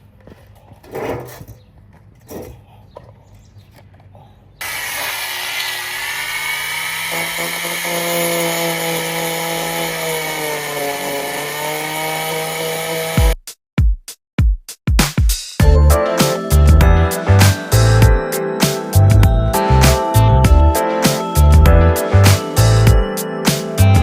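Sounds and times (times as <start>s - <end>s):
power tool whining on metal: 4.6s - 13.4s
drum-machine beat music: 13.2s - 24.0s.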